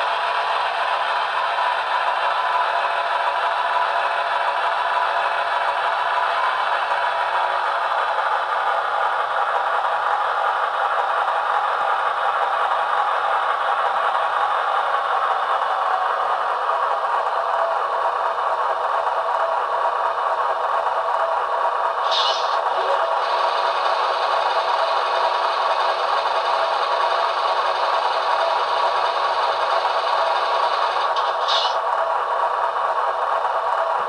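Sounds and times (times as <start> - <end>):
model locomotive engine drone: 0.0 - 34.0
short high hisses: 22.0 - 23.1, 31.1 - 31.8.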